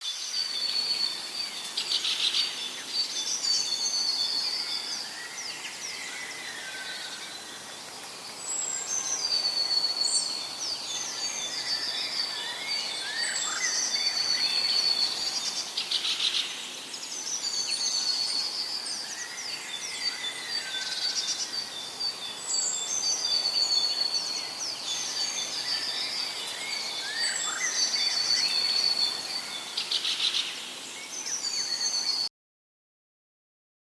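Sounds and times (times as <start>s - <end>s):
light outdoor background noise: 0.0s - 32.3s
birds singing and chirping: 0.1s - 32.3s.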